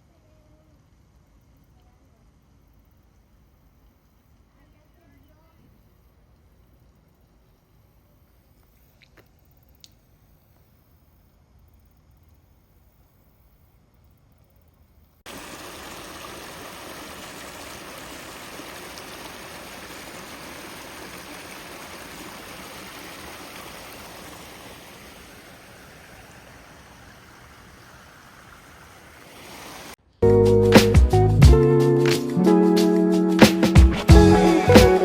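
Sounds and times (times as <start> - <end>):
running water rushing: 15.3 - 30.0.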